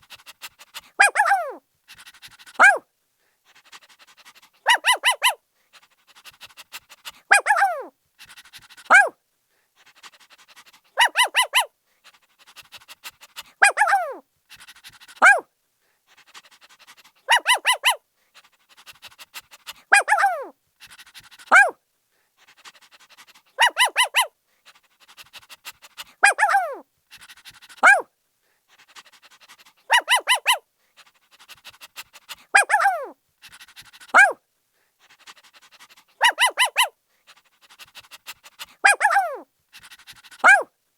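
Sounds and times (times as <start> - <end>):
puppy panting: 0.0 - 2.8, 3.4 - 9.1, 9.8 - 15.4, 16.0 - 40.7
puppy barking and yelping: 0.4 - 2.8, 4.1 - 5.4, 7.1 - 7.9, 8.9 - 9.2, 10.4 - 11.7, 13.4 - 15.4, 16.4 - 18.0, 19.0 - 21.8, 23.1 - 24.4, 25.1 - 28.1, 28.8 - 34.4, 35.3 - 37.0, 37.7 - 40.7.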